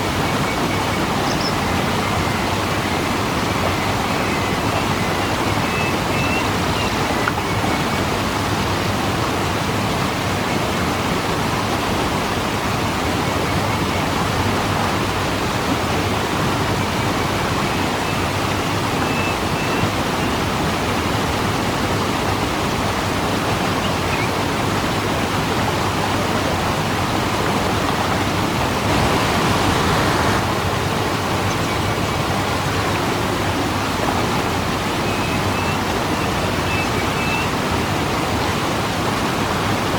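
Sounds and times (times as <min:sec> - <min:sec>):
waterfall rushing: 0:23.6 - 0:36.6.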